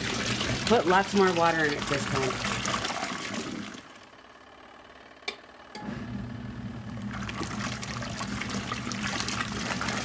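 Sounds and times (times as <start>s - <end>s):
water sloshing in tub: 0.0s - 4.0s, 7.1s - 10.0s
washing machine motor humming: 0.0s - 10.0s.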